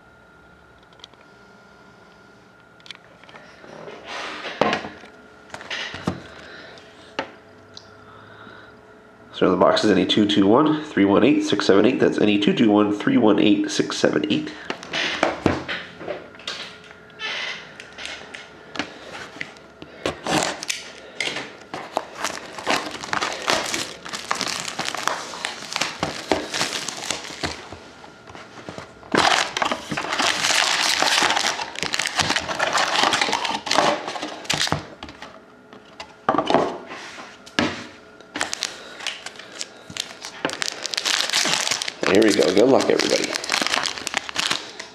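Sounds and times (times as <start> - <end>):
plastic wrapping crinkling: 21.6 - 34.8, 38.3 - 44.9.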